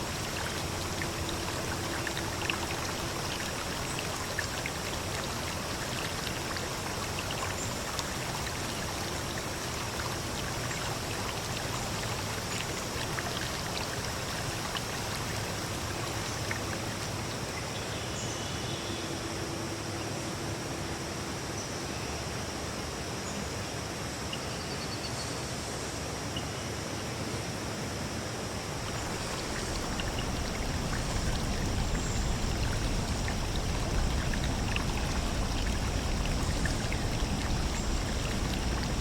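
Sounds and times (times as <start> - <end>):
drip-like ticks: 0.0 - 17.6, 28.9 - 39.0
running water: 0.0 - 18.3, 28.5 - 39.0.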